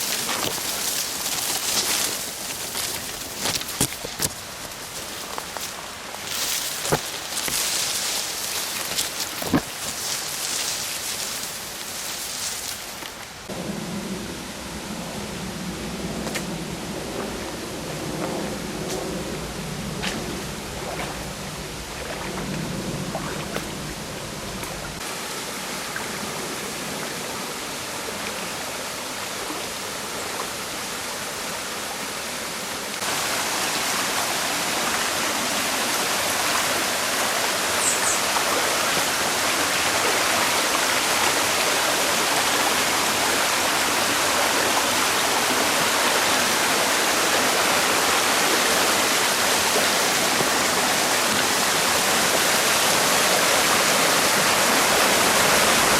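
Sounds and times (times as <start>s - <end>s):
waterfall rushing and splashing: 0.0s - 13.5s, 20.6s - 55.9s.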